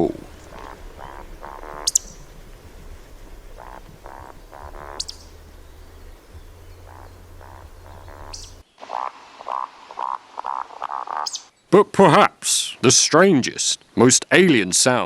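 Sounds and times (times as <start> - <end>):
bird croaking grunts: 0.0 - 11.5.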